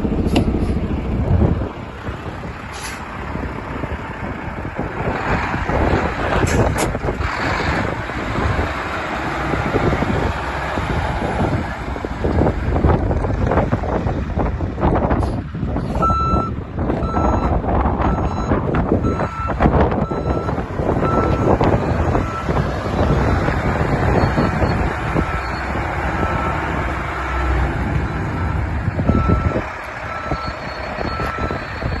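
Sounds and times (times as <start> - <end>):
diesel engine rumble: 0.0 - 32.0
truck backup alarm beeping: 16.0 - 26.9, 27.9 - 32.0.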